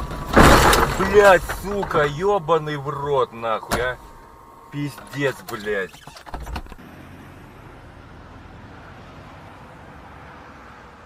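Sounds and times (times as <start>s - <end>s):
knocks: 0.0s - 2.2s
vehicle interior noise: 0.0s - 11.0s.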